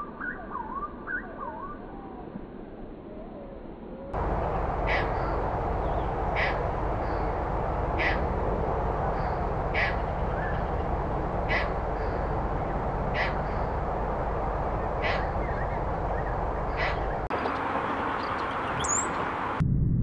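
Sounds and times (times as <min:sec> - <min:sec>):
bird calling: 0:04.2 - 0:19.5.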